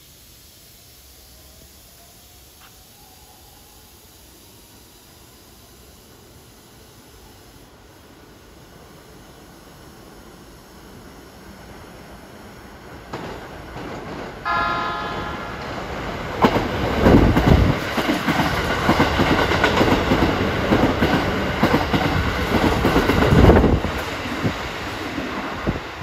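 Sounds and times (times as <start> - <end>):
train passing at speed: 0.0 - 26.0
electric train horn: 14.4 - 15.9.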